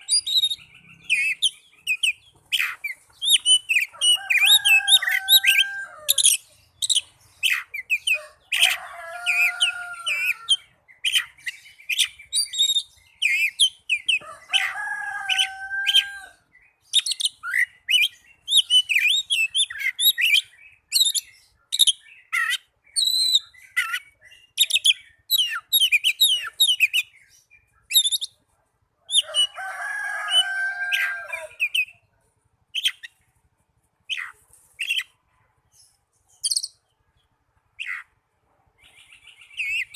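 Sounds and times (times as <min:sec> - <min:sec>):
bird singing rapid chirps and trills: 0:00.0 - 0:39.9.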